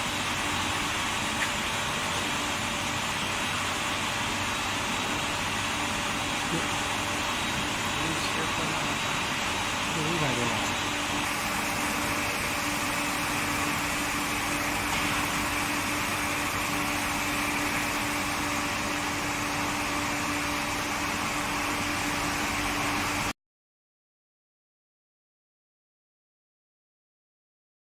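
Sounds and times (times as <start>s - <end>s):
constant machinery hum: 0.0s - 23.3s
industrial machinery hiss: 5.3s - 23.3s.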